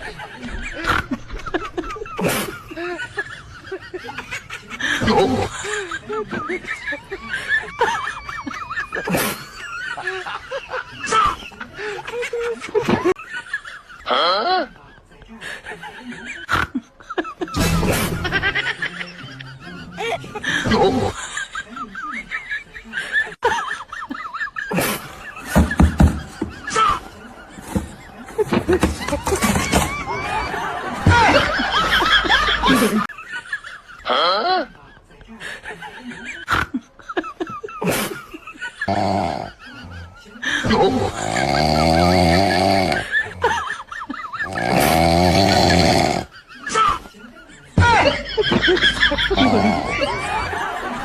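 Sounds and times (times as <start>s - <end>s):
snickering laugh-like voice: 0.0s - 14.8s, 15.5s - 34.8s, 35.6s - 47.2s, 47.8s - 51.0s
high-pitched snickering laughter: 36.2s - 47.2s, 48.0s - 51.0s.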